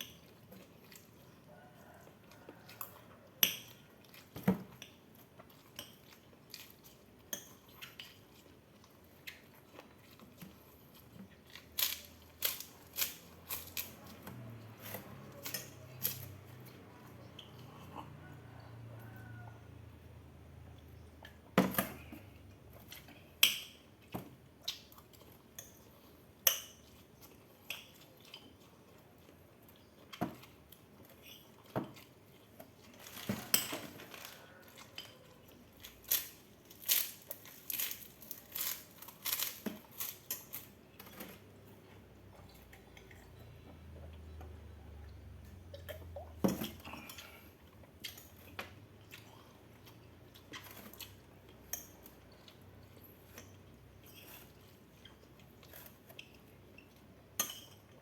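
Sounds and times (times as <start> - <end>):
cutlery clinking on a plate: 57.4 - 57.9.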